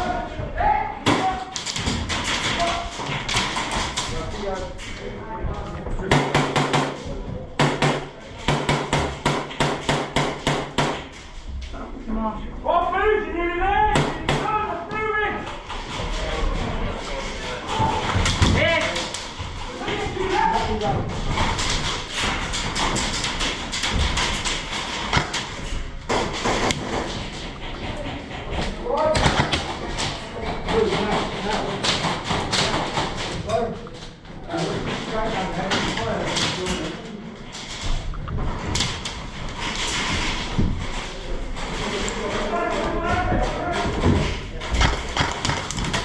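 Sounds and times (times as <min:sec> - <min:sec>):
noisy background: 0:00.0 - 0:46.0
airsoft gun firing: 0:07.6 - 0:11.1
sharp clicks and knocks: 0:15.5 - 0:46.0
loud cracks: 0:21.2 - 0:33.4, 0:43.5 - 0:46.0.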